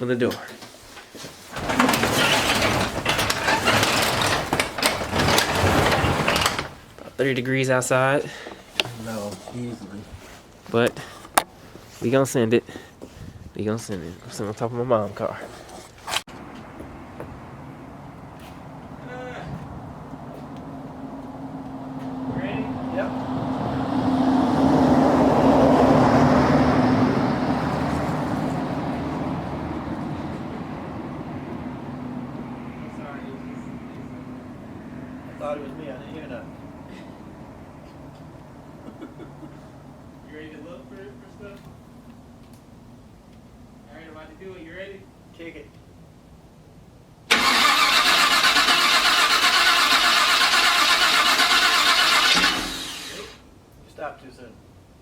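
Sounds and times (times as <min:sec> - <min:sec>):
starter motor cranking engine: 0:01.6 - 0:06.9, 0:47.3 - 0:53.4
road vehicle passing: 0:16.3 - 0:42.0, 0:47.3 - 0:53.5.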